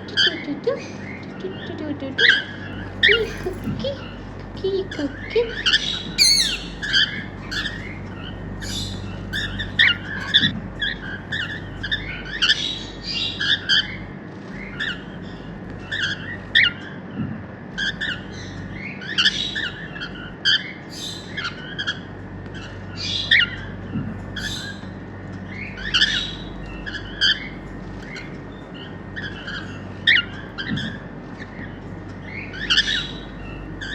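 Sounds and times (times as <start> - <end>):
steady low hum: 0.0 - 33.9
cockatiels squawking and chirping: 2.7 - 4.2, 4.9 - 14.0, 14.6 - 16.7, 17.8 - 21.5, 24.4 - 24.8, 32.5 - 33.9.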